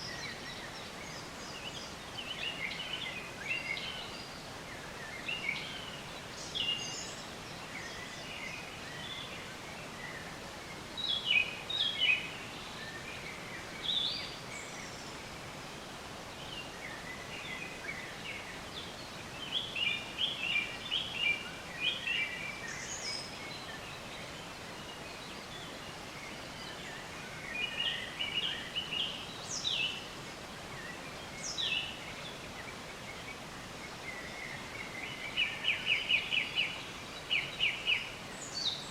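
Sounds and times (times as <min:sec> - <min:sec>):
faint background hiss: 0:00.0 - 0:38.9
songbirds chirping and trilling: 0:00.0 - 0:38.9.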